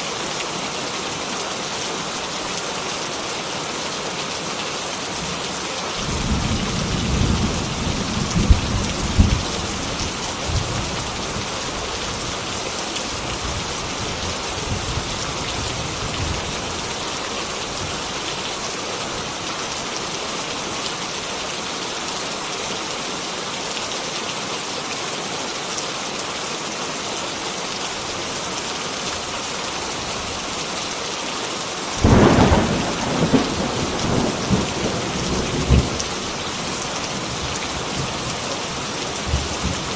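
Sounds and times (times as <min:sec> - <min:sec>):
heavy rain falling: 0:00.0 - 0:39.9
thunder rumbling: 0:06.0 - 0:11.4, 0:32.0 - 0:38.4
loud thunderclap: 0:06.2 - 0:09.6, 0:32.0 - 0:36.0.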